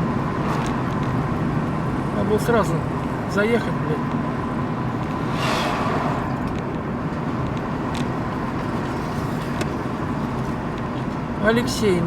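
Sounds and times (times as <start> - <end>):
car engine and road rumble: 0.0 - 12.0
brief rushing swell: 5.2 - 6.4.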